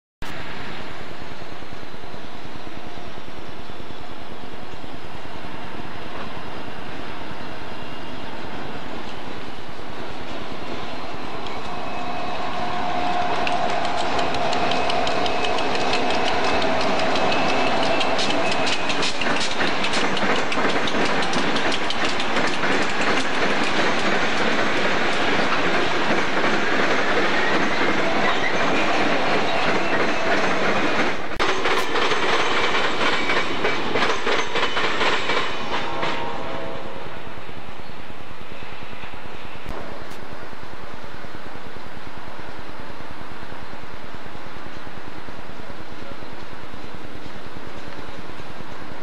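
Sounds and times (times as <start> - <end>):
locomotive engine drone with whine: 0.3 - 22.1
wheels clacking over rail joints: 10.0 - 36.4.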